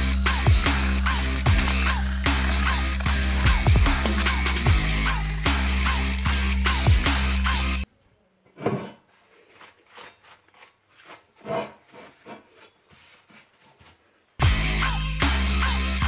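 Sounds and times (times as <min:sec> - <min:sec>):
hand rubbing or scraping strokes: 0:00.0 - 0:07.8, 0:09.1 - 0:16.0
music: 0:00.0 - 0:07.8, 0:14.4 - 0:16.0.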